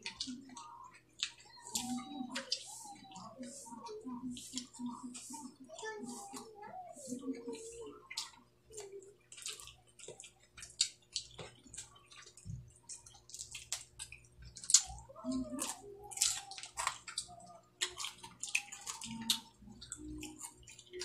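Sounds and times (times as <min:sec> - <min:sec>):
wet chewing: 0:00.0 - 0:21.0.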